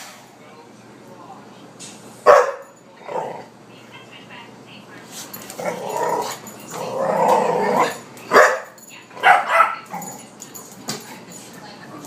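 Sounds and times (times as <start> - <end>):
dog barking and growling: 2.3 - 3.6, 5.5 - 10.3.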